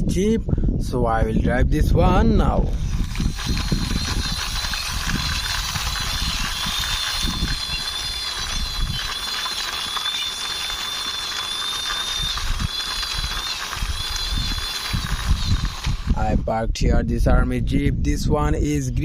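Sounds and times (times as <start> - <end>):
toy jeep wheels rattling: 2.7 - 16.3.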